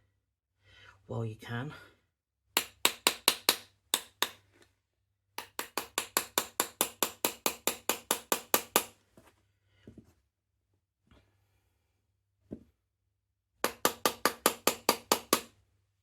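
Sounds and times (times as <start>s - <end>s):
small hammer tapping metal pin: 2.6s - 4.4s, 5.4s - 8.9s, 13.6s - 15.5s.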